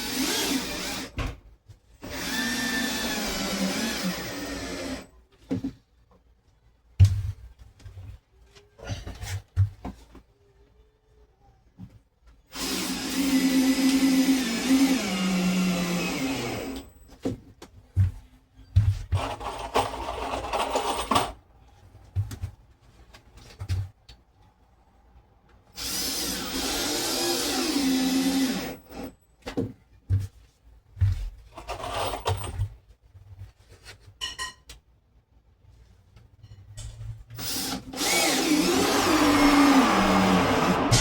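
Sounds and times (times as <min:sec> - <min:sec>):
power drill running: 0:00.0 - 0:01.1, 0:02.0 - 0:05.0, 0:12.6 - 0:16.8, 0:25.8 - 0:29.1, 0:37.4 - 0:41.0.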